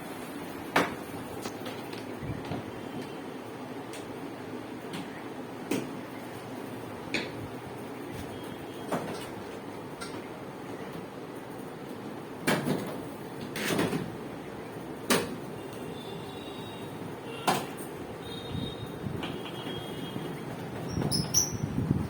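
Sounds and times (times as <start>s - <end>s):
steady background noise: 0.0s - 22.0s.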